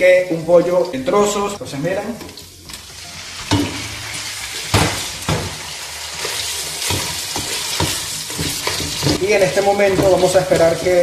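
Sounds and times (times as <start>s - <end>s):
chicken sizzling in oil: 0.0s - 11.0s
wooden spoon scraping and stirring: 6.0s - 11.0s.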